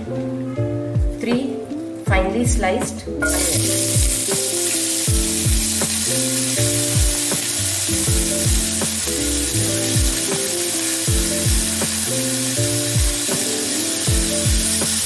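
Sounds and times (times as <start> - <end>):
onions sizzling in oil: 3.2 - 15.0.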